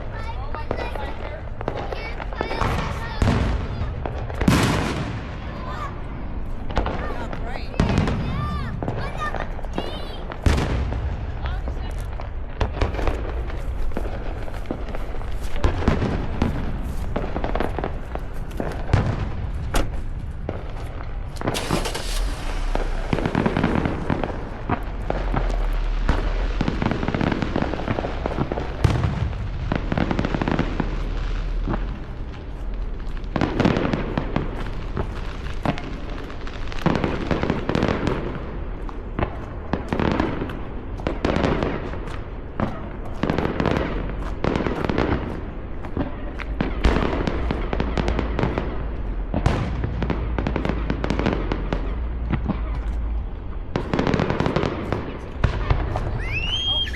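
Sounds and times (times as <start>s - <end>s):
fireworks booming and crackling: 0.0s - 56.9s
hissing crackle: 8.4s - 41.2s.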